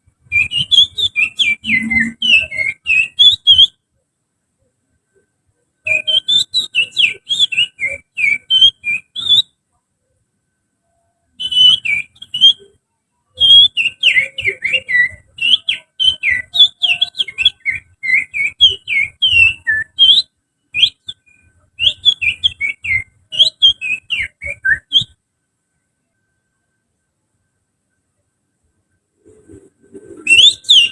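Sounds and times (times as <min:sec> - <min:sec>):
person whistling birdsong: 0:00.3 - 0:03.7, 0:05.9 - 0:09.5, 0:11.3 - 0:12.7, 0:13.4 - 0:25.2, 0:29.4 - 0:30.9.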